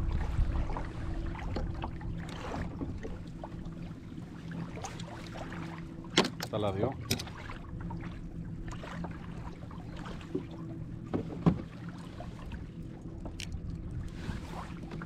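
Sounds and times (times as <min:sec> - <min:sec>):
low hum: 0:00.0 - 0:15.0
kayak knocks and handling noise: 0:06.1 - 0:07.4, 0:10.4 - 0:11.8.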